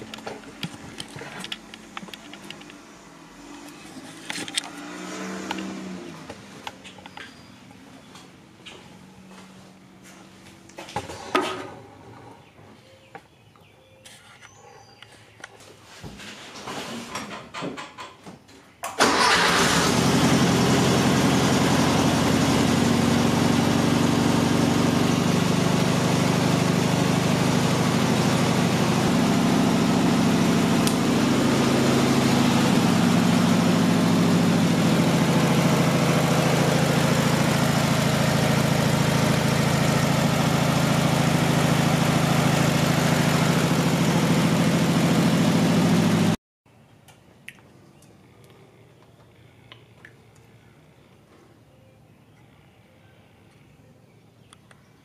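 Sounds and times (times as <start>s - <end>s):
car engine starting and idling: 0.0s - 7.2s, 18.9s - 46.4s.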